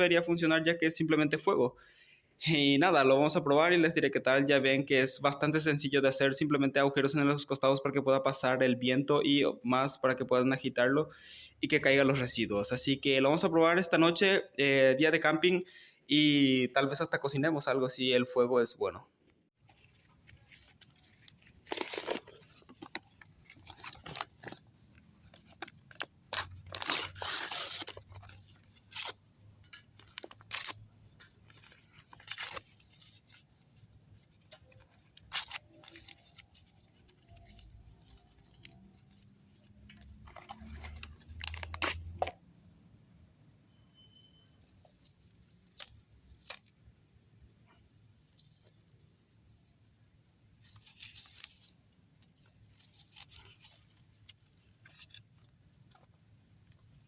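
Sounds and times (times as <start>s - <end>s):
faint high-pitched tone: 16.2s - 57.0s.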